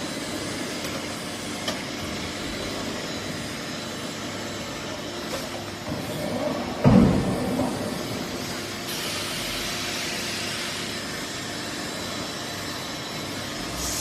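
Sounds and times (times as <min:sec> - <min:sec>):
compressed air hiss: 0:08.9 - 0:11.0.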